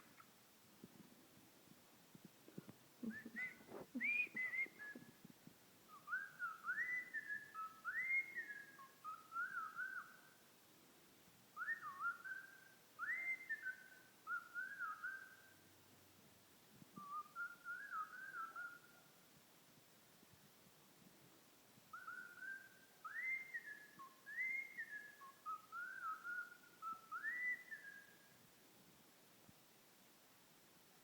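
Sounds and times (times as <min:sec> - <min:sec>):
cockatiel whistling a tune: 0:03.0 - 0:05.1, 0:05.9 - 0:10.2, 0:11.6 - 0:15.5, 0:17.0 - 0:19.0, 0:21.9 - 0:28.2.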